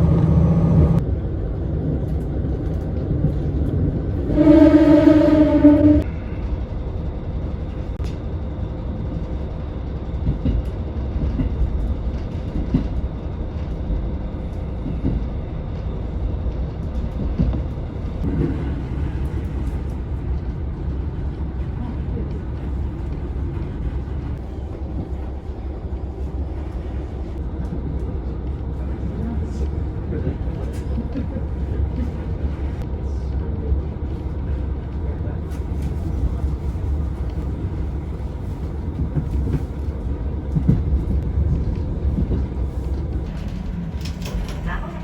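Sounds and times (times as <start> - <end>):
diesel railcar engine rumble: 0.0 - 45.0
train wheels on rails: 34.1 - 45.0.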